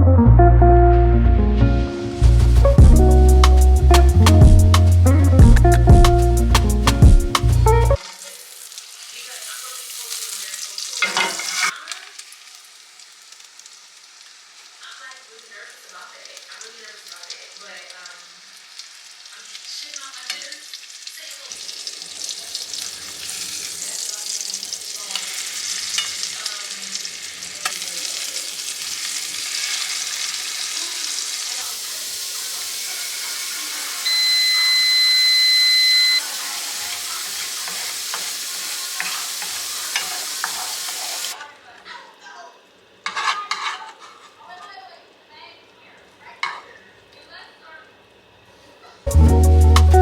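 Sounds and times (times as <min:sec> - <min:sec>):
food sizzling in a pan: 0:02.0 - 0:50.0
electronic beep: 0:34.1 - 0:36.2.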